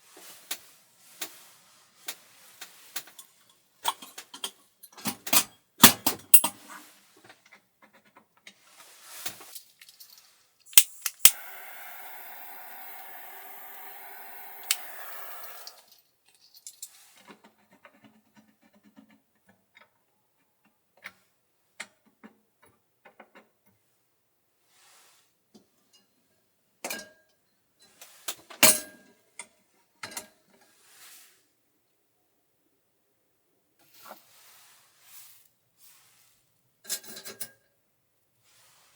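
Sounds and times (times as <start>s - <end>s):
steady hiss: 11.2s - 15.9s.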